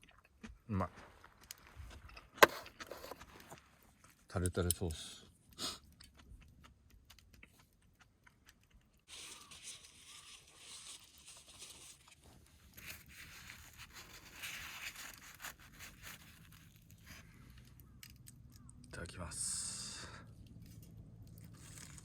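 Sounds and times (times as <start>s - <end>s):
crinkling and scraping handling noise: 0.8s - 4.9s, 8.5s - 18.7s, 20.4s - 22.0s.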